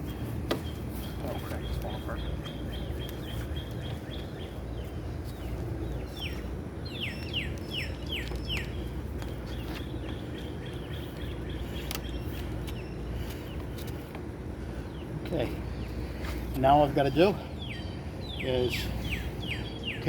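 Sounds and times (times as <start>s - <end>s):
bird singing falling notes: 0.0s - 13.8s
bird chirping: 0.0s - 20.0s
low outdoor rumble: 0.0s - 20.0s.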